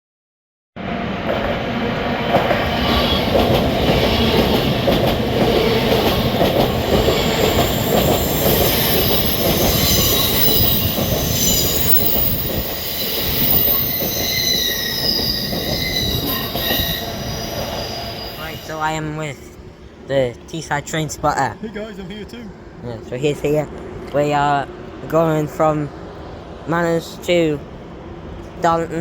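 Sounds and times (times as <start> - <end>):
train rumbling on rails: 0.8 - 29.0
wheel squeal: 7.4 - 18.7.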